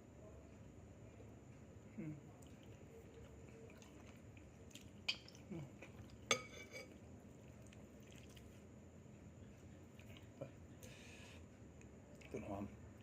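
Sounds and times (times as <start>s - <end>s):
utensil clinking against a dish: 6.2s - 7.0s.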